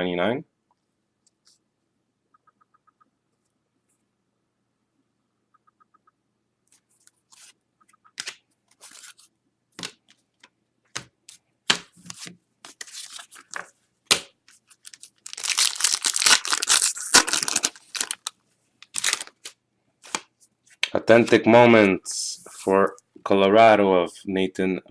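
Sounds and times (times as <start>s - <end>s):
wrapper rustling and tapping: 11.9s - 21.5s
wrapper tearing and crinkling: 14.6s - 20.2s.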